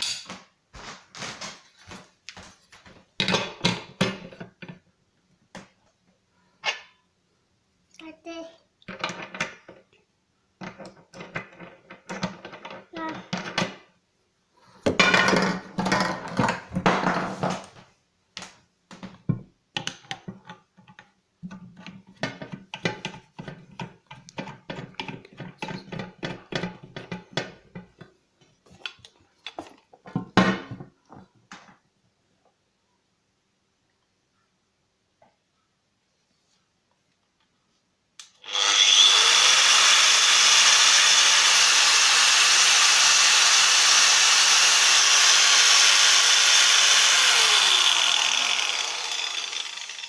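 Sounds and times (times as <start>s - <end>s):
parts knocking and clattering: 0.0s - 4.8s, 8.9s - 9.9s, 10.6s - 13.8s, 14.8s - 17.8s, 18.9s - 31.8s
packaging rustling: 0.8s - 2.6s.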